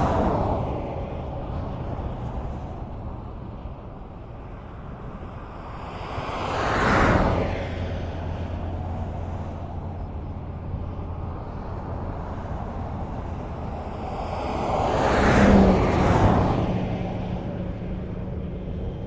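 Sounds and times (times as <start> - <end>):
vehicle passing close: 0.0 - 3.2
highway traffic rumble: 0.0 - 19.0.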